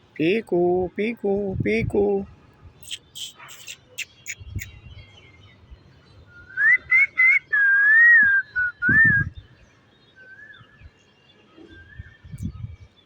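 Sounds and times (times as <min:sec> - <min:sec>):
parrot whistling a tune: 0:06.5 - 0:09.2.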